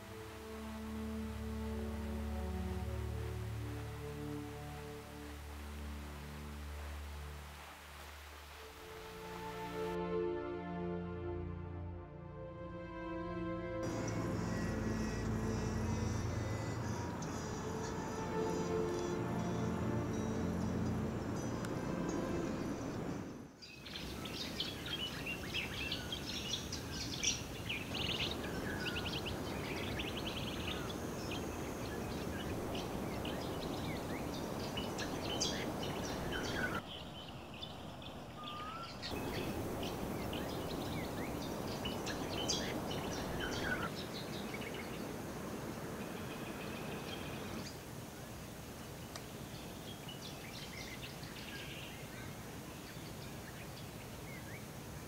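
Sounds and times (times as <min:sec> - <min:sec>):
background hiss: 0:00.0 - 0:11.8, 0:13.8 - 0:55.0
birds chirping and calling: 0:23.7 - 0:45.1.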